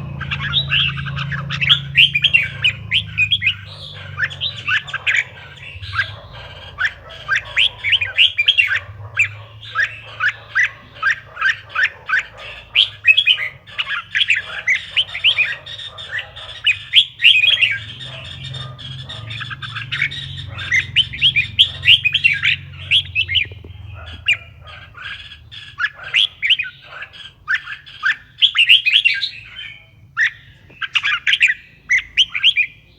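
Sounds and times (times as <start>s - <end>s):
low steady hum: 0.0s - 11.5s
bird chirping song: 0.0s - 32.9s.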